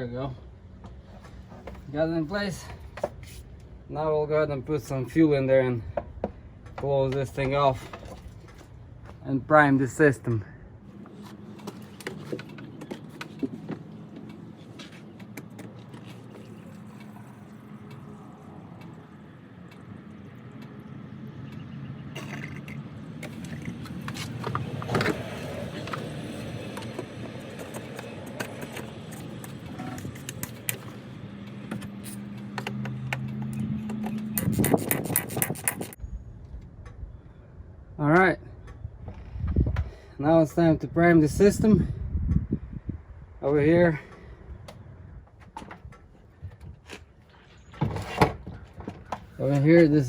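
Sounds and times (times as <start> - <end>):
low hum: 33.3 - 39.8.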